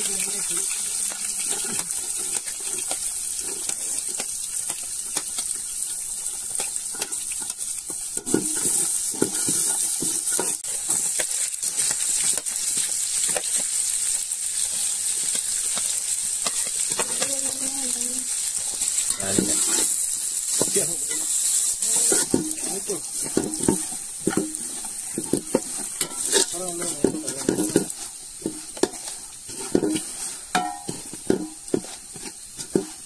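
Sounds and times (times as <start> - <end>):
aromatics sizzling in hot oil: 0.0 - 33.0
spatula scraping a metal pot: 6.6 - 11.1, 18.6 - 33.0.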